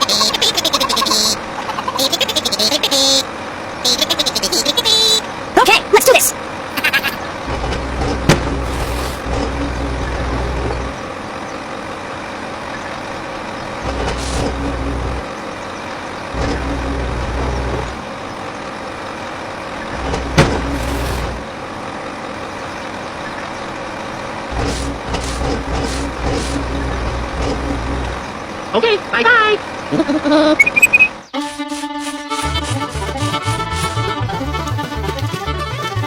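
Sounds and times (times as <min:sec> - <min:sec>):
motor humming: 0:06.9 - 0:11.8, 0:12.7 - 0:18.6, 0:19.8 - 0:21.7.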